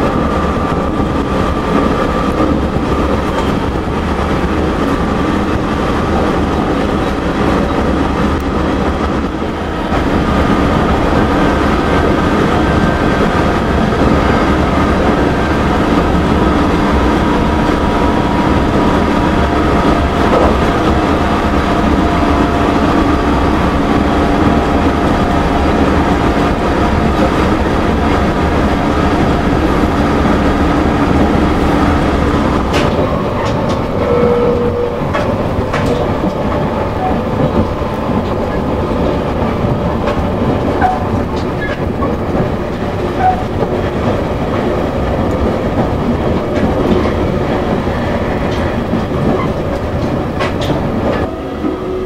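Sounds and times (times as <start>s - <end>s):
electric train whine: 0.0s - 52.0s
train wheels rumbling on rail: 0.0s - 52.0s.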